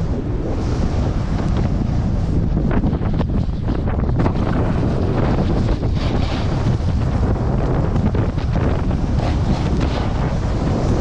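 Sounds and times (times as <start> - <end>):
heavy wind rushing over microphone: 0.0 - 11.0.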